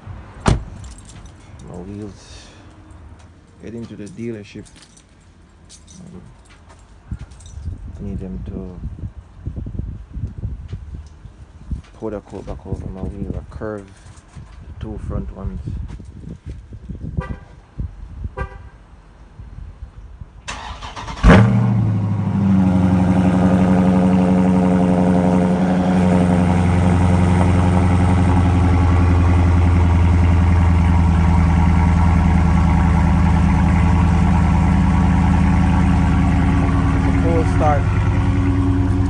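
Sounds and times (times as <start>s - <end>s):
car engine starting and idling: 20.5s - 39.0s.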